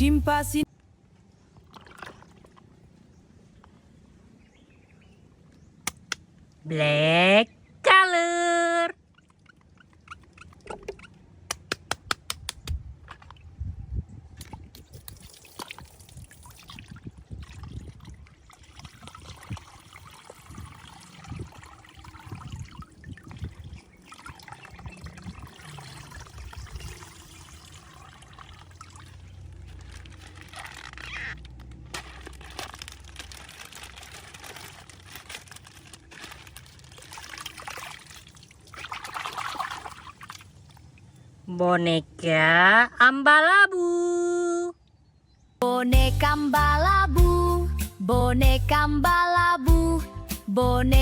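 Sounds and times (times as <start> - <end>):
plastic bag crinkling: 29.2 - 37.9.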